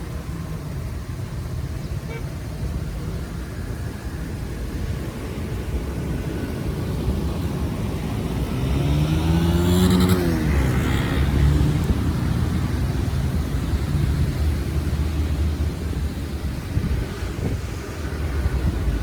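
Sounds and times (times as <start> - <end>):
vehicle passing by: 5.0 - 19.0.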